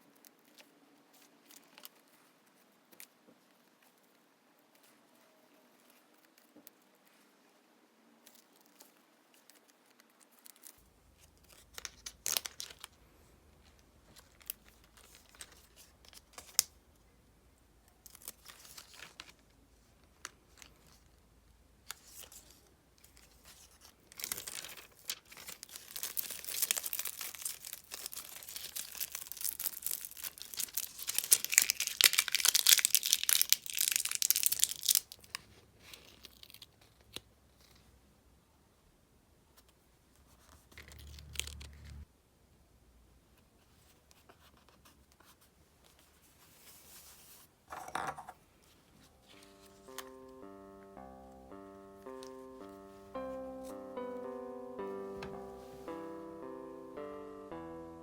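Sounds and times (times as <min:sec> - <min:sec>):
scratching and rustling on paper: 0:00.1 - 0:07.4, 0:43.4 - 0:47.6.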